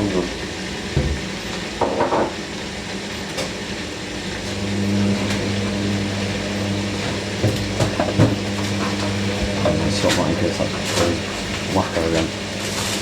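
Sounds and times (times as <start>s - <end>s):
washing machine motor hum: 0.0s - 13.0s
washing machine knocks: 0.9s - 2.4s, 7.1s - 9.8s.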